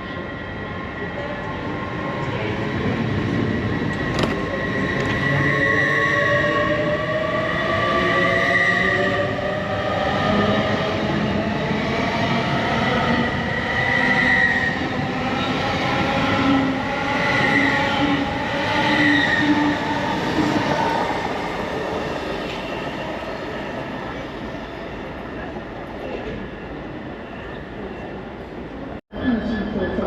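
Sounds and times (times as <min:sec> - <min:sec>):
train rumbling: 0:06.4 - 0:29.0.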